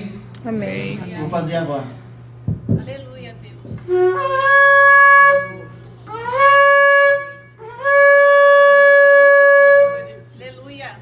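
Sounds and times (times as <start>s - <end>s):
shofar blasts: 3.8s - 10.2s.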